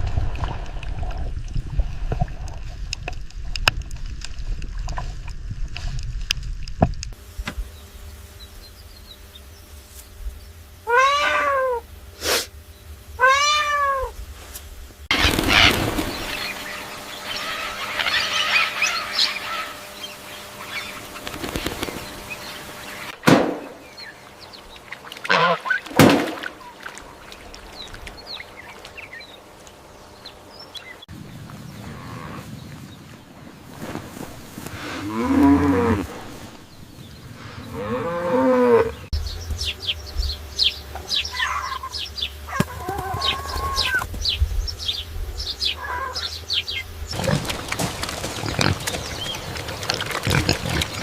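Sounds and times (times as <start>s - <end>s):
animal calls: 10.8s - 11.9s, 13.2s - 14.2s, 15.1s - 23.1s, 24.9s - 27.3s, 41.2s - 44.1s, 45.6s - 51.0s
rustling noise: 14.2s - 16.0s, 31.4s - 37.6s
sharp knocks: 23.2s - 23.8s.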